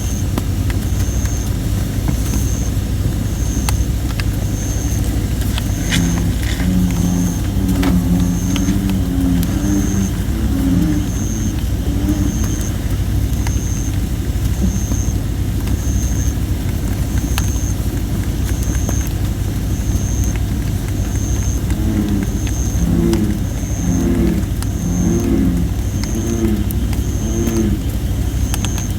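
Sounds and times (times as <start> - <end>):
campfire crackling and popping: 0.2 - 25.2
bullfrog calls: 2.2 - 15.2, 18.5 - 28.9.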